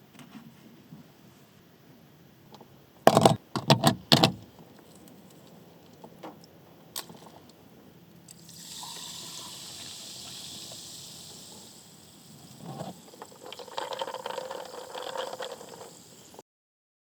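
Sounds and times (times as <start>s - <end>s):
steady hiss: 8.2s - 16.4s.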